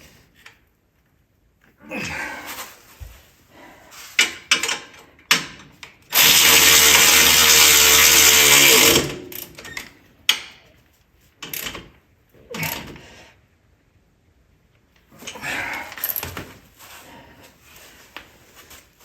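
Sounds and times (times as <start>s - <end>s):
tools clicking and knocking: 4.2s - 6.3s, 8.9s - 10.7s
power tool motor winding down: 6.1s - 9.4s.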